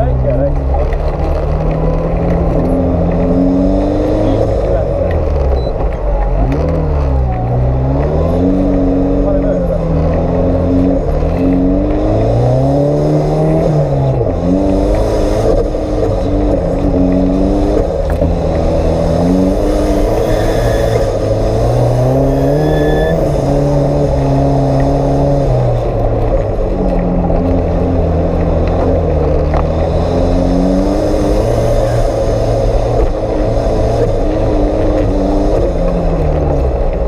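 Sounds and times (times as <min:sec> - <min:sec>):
off-road engine revving under load: 0:00.0 - 0:05.6, 0:06.4 - 0:26.4, 0:27.2 - 0:37.0
short high squeal: 0:19.9 - 0:21.2, 0:22.0 - 0:23.4.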